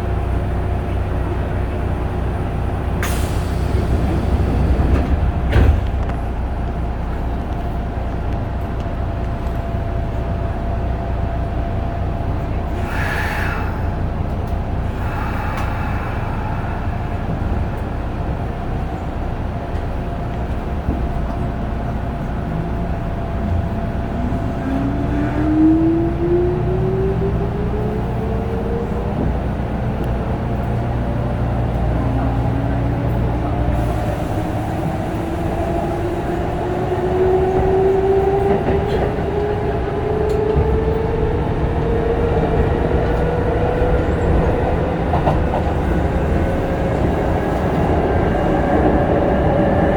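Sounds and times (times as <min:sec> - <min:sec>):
train rumble inside carriage: 0:00.0 - 0:49.9
hiss of air: 0:12.8 - 0:14.0.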